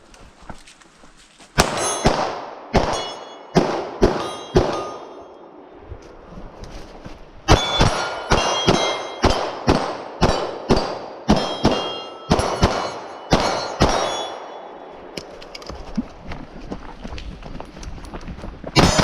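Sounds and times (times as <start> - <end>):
bullets clanging on steel target: 1.6 - 5.4, 7.5 - 14.8, 18.8 - 19.0
gunshots: 1.6 - 5.6, 7.5 - 14.6, 18.8 - 19.0.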